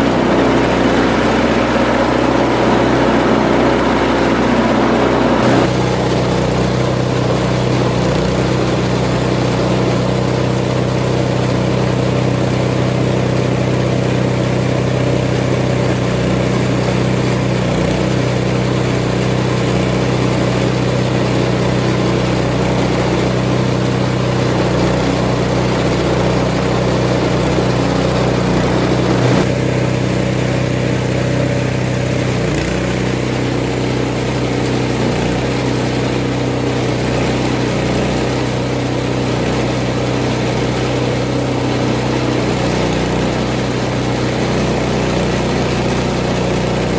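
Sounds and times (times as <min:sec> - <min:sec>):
feed chopping machine humming: 0:00.0 - 0:46.9.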